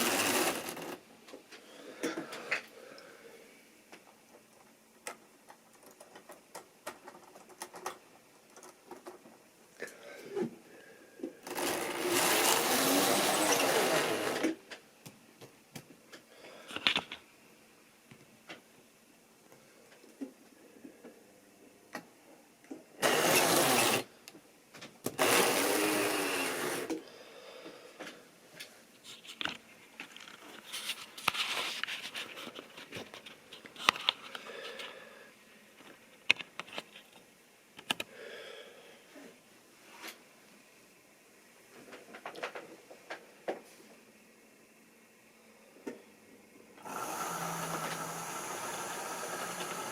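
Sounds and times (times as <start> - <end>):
model train motor whirring: 0.0 - 1.0, 11.4 - 14.6, 23.0 - 24.1, 25.2 - 27.0, 46.8 - 49.9
rustling of small items: 28.0 - 35.0.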